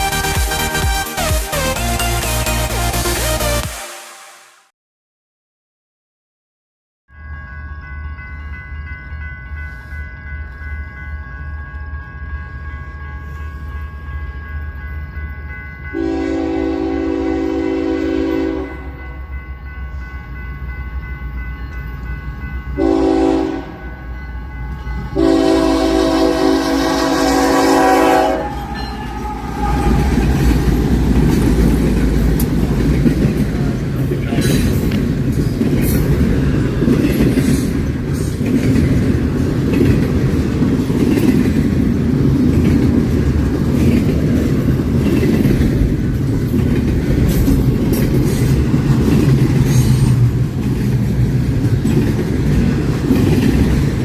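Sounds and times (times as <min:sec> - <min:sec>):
train passing rumble: 0:07.1 - 0:54.0
locomotive engine hum: 0:08.5 - 0:54.0
train air horn blasts: 0:16.0 - 0:19.1, 0:22.8 - 0:23.8, 0:25.1 - 0:30.8
wheels clacking over rail joints: 0:28.5 - 0:54.0.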